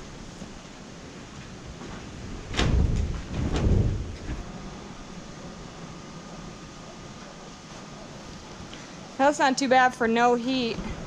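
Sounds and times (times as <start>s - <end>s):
loud knock with rattle: 2.5s - 4.4s.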